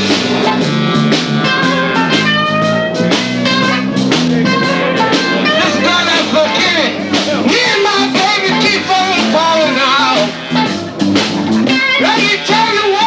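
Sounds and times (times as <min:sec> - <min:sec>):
drum kit: 0:00.0 - 0:13.0
electric guitar: 0:00.0 - 0:13.0.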